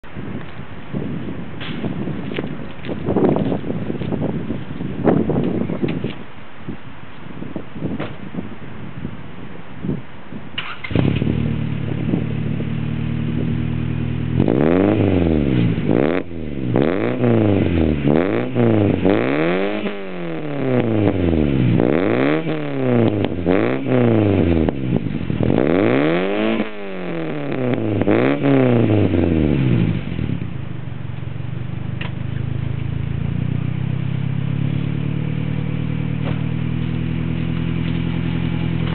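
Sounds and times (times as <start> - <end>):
car engine idling and revving: 10.6 - 38.9.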